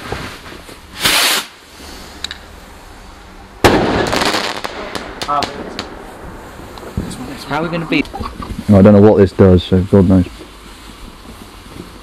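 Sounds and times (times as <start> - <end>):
firework bang: 0.0 - 2.0, 3.6 - 8.6
firework whoosh: 0.0 - 8.9
firework crackling: 0.0 - 12.0.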